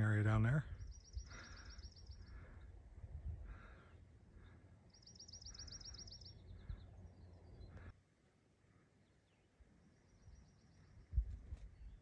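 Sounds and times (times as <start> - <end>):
songbird trilling: 0.7 - 2.4, 4.9 - 7.8
wind rumble on microphone: 2.7 - 3.7, 11.0 - 12.0.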